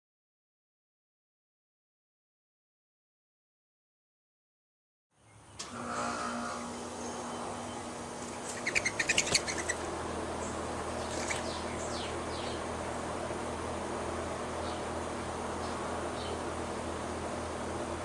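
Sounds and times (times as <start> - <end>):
small birds chirping: 6.6 - 13.4, 14.3 - 17.8.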